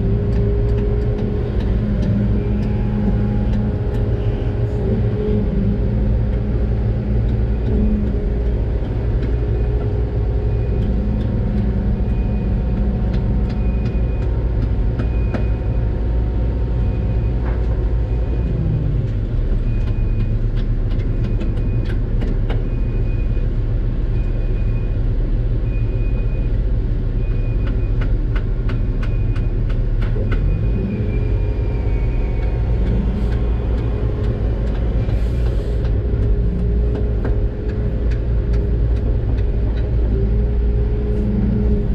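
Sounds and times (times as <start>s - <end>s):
sharp clicks and knocks: 0.0s - 4.2s, 7.1s - 15.8s, 19.0s - 22.8s, 27.6s - 30.6s, 32.4s - 41.8s
excavator diesel engine running: 0.0s - 41.9s.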